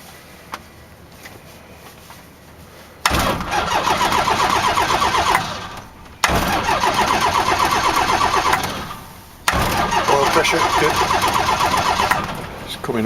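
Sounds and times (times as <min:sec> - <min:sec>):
aircraft engine starter cranking: 0:03.0 - 0:13.0.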